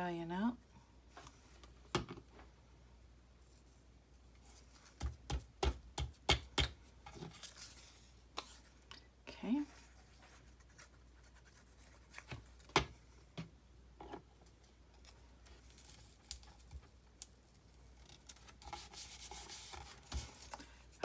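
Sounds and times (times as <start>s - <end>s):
soft scrapes on tabletop: 9.5s - 12.3s.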